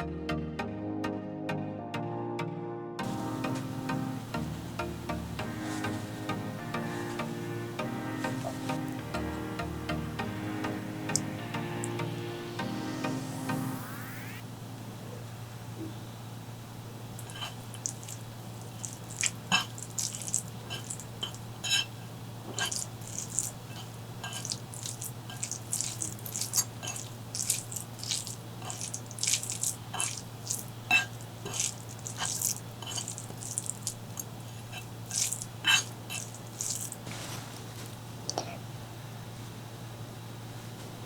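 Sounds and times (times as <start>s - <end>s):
wet chewing and lip smacks: 11.1s - 12.0s, 17.2s - 21.4s, 22.6s - 37.1s.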